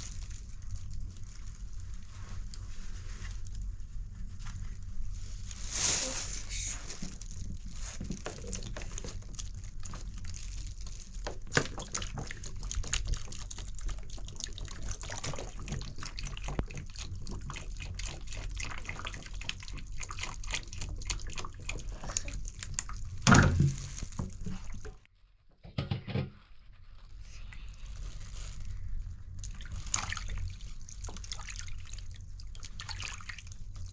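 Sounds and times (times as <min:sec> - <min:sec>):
water trickling and dripping: 0:29.4 - 0:33.9.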